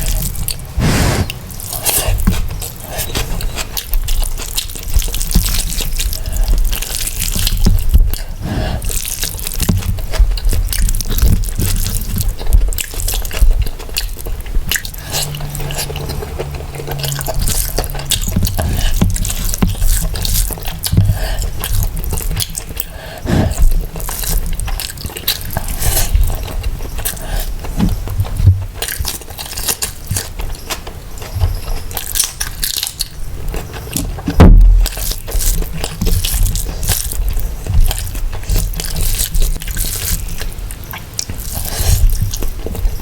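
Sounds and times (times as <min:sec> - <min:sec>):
person chewing food: 0:00.0 - 0:43.0
low thump: 0:34.4 - 0:34.9.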